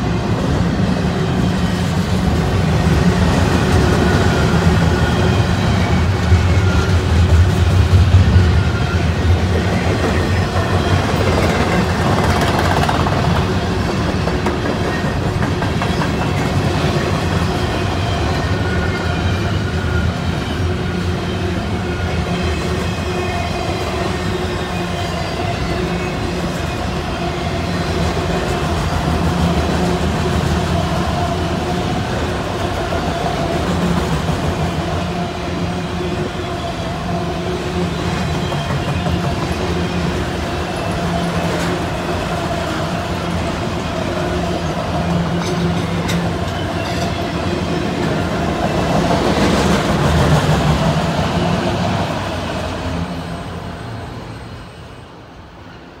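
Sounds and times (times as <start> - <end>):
train wheels rumbling on rails: 0.0 - 55.8
rail clicks: 1.4 - 19.5, 38.0 - 53.0.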